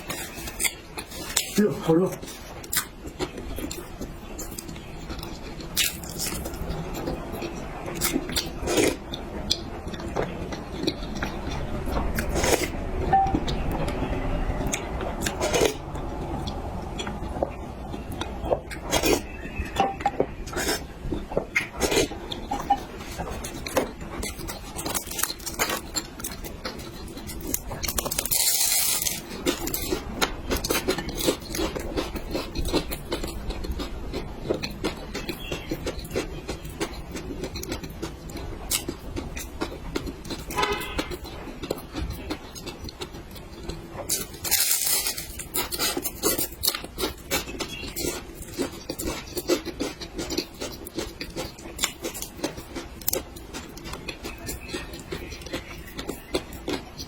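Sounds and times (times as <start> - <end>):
chewing: 0.0 - 57.0.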